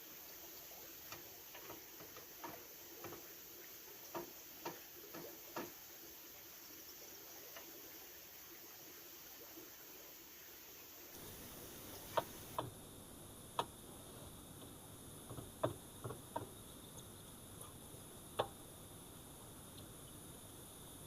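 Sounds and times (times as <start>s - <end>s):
faint steady hiss: 0.0s - 21.0s
light sharp knocks and clicks: 1.0s - 3.4s, 4.1s - 5.8s, 12.0s - 12.8s, 14.6s - 18.6s.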